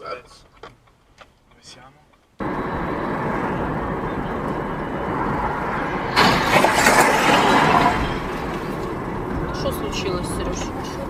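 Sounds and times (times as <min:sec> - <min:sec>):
car engine and road noise: 0:00.0 - 0:11.0
car collision crunching: 0:02.4 - 0:11.0.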